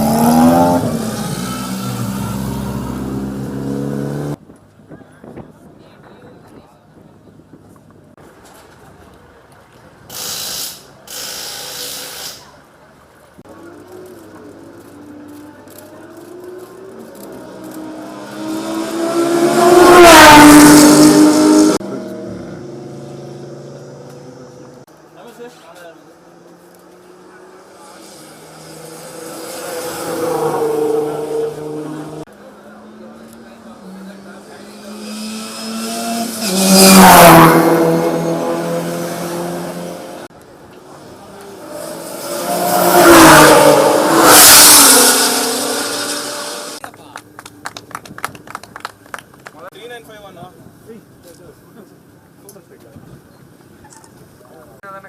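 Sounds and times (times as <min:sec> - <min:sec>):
race car passing at speed: 0:00.0 - 0:04.4, 0:15.1 - 0:24.9, 0:26.2 - 0:46.8.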